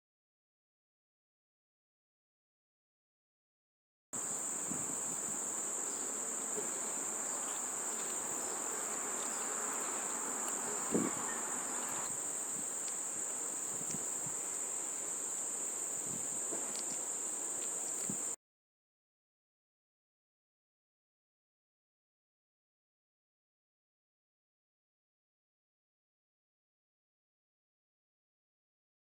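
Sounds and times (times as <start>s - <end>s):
crickets trilling: 4.2s - 18.4s.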